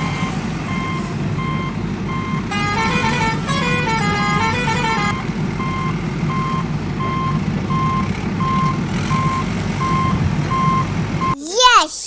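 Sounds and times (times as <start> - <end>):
reversing alarm beeps: 0.2 - 2.4.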